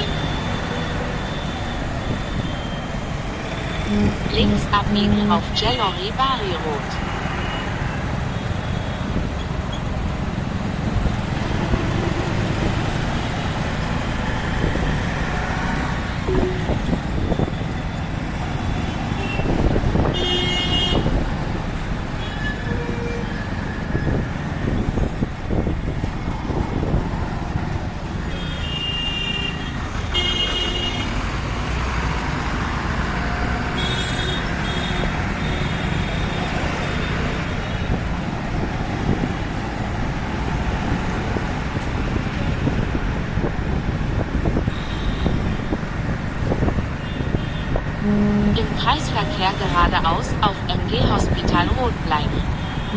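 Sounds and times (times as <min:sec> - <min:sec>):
road and wind rumble: 0:00.0 - 0:52.9
vehicle horns honking: 0:19.2 - 0:21.1, 0:28.3 - 0:31.2, 0:33.8 - 0:36.4, 0:47.0 - 0:50.0.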